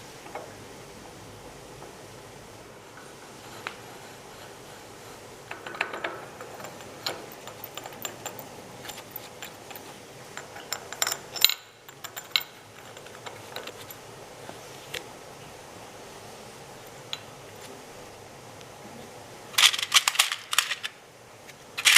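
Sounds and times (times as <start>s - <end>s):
metal tools clicking and knocking: 5.5s - 14.0s.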